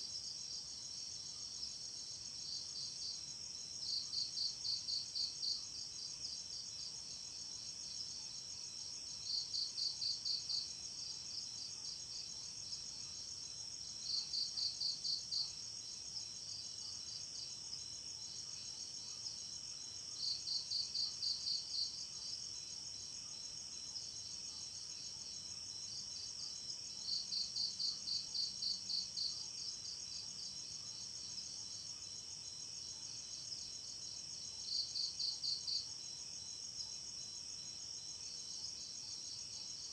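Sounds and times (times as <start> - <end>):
insect chirping: 0.1 - 39.9.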